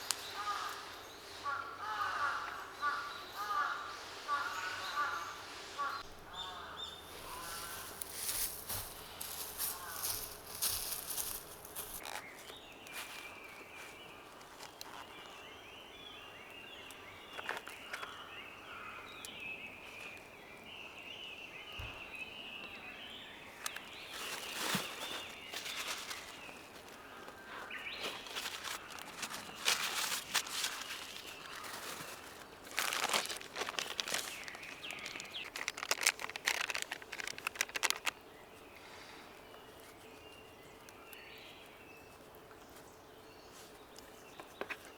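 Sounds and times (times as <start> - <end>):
small birds twittering: 0.0 - 44.9
rustling and crinkling handling: 7.0 - 15.4, 23.6 - 38.2.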